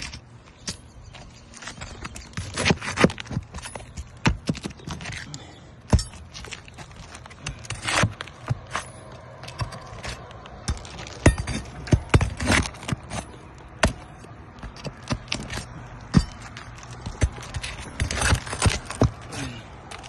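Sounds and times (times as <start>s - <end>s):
shingles scraping: 1.5s - 5.4s, 6.1s - 20.0s
tools knocking on shingles: 9.5s - 19.2s.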